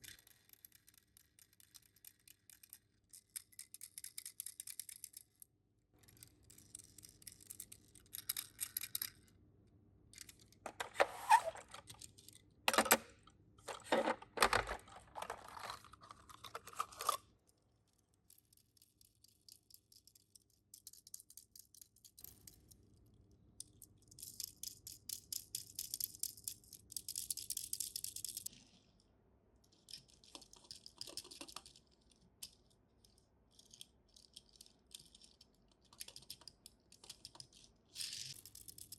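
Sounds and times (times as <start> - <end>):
toy cars and packaging rattling: 0.0 - 5.4, 6.0 - 9.3, 10.2 - 17.3, 29.6 - 38.9.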